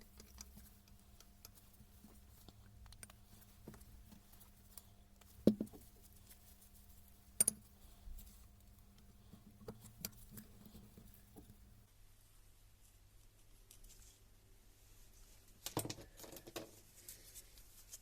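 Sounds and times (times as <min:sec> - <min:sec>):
parts clicking and knocking: 0:00.0 - 0:11.8
faint steady hum: 0:00.0 - 0:18.0.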